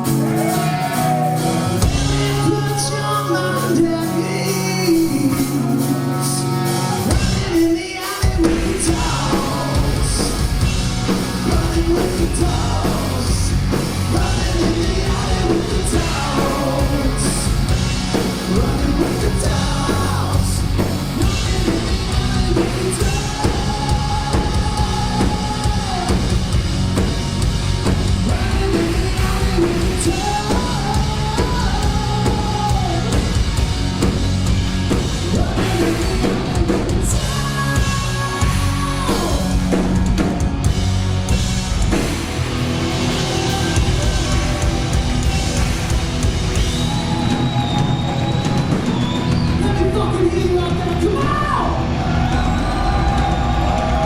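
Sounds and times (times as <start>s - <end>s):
lead singer holding long notes: 0.0s - 10.6s, 11.3s - 26.6s
hard rock band playing: 0.0s - 54.0s.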